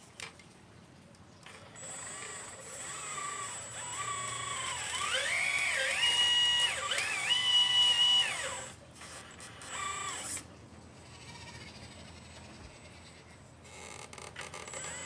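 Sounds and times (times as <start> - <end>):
electric motor whine: 1.5 - 10.5, 14.4 - 15.0.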